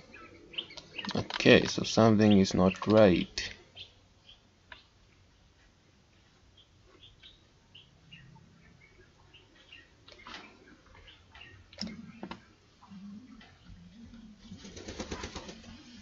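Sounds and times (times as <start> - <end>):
birds chirping: 0.0 - 16.0
bird cooing: 10.6 - 16.0.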